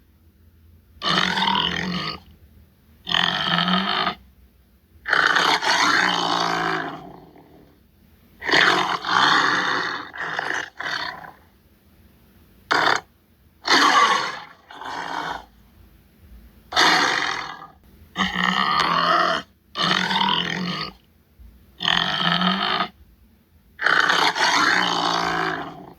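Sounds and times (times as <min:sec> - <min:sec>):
tiger roaring and growling: 0:01.0 - 0:02.3, 0:03.1 - 0:04.2, 0:05.1 - 0:07.8, 0:08.4 - 0:11.5, 0:12.7 - 0:15.5, 0:16.7 - 0:21.0, 0:21.8 - 0:23.0, 0:23.8 - 0:25.9.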